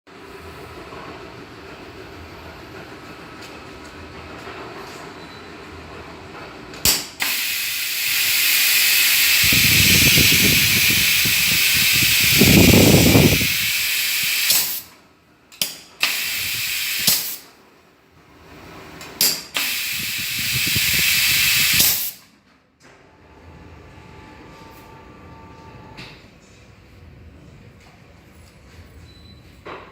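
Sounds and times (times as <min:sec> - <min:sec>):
compressed air hissing: 0:06.9 - 0:14.9, 0:16.0 - 0:17.5, 0:19.6 - 0:22.2.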